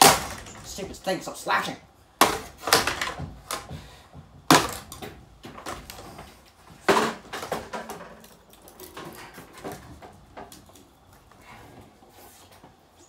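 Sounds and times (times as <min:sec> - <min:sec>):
ceiling fan being smashed: 0:00.0 - 0:01.0, 0:02.2 - 0:10.7
knocks and rattles: 0:02.2 - 0:10.8.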